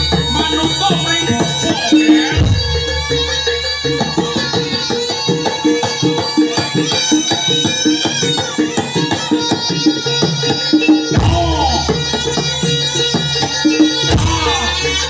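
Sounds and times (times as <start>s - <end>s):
drum strokes in a quick beat: 0.0s - 15.0s
reedy wind instrument melody: 0.0s - 15.0s.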